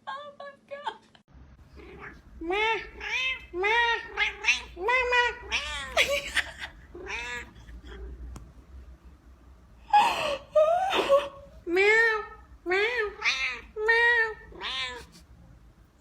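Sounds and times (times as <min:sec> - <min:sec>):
cat meowing: 0:01.8 - 0:06.0, 0:07.0 - 0:08.1, 0:12.8 - 0:15.2
cat yowling: 0:01.8 - 0:06.2, 0:06.9 - 0:08.1, 0:11.8 - 0:15.2.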